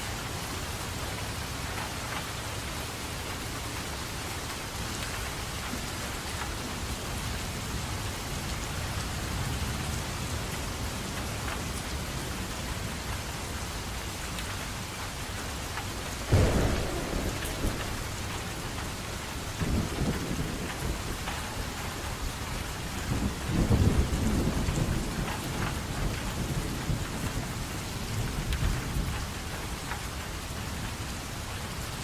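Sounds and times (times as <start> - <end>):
rain falling: 0.0 - 32.0
thunder crack: 16.2 - 25.1
thunder rumbling: 16.2 - 28.8.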